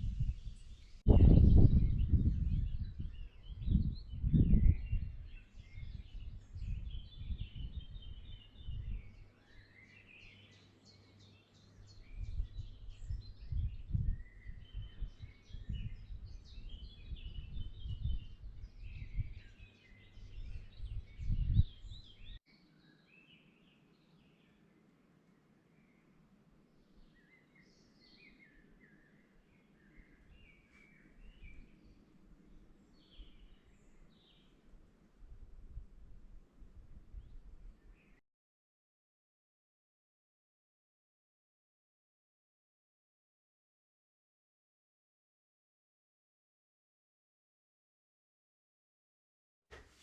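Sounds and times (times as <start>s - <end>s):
birds chirping and singing: 0.0s - 24.8s, 26.8s - 34.6s.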